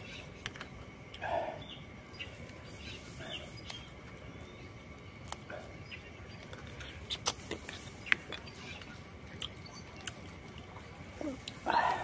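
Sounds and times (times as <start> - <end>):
person chewing: 9.3 - 10.6.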